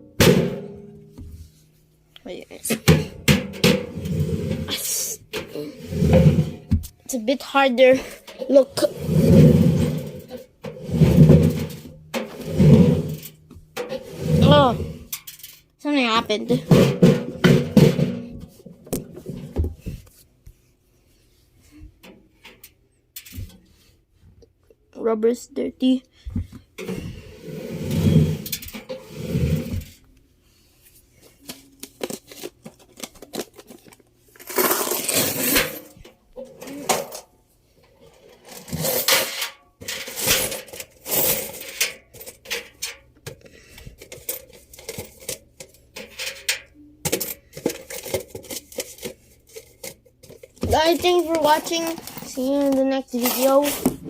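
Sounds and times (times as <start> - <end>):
coins clinking and rattling: 34.4 - 35.9, 38.4 - 42.7.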